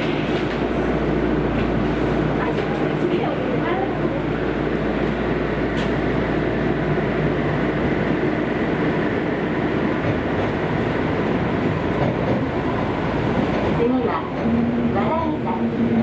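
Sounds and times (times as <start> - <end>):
train motor hum: 0.0 - 15.9
wheels rumbling on rail: 0.0 - 16.0.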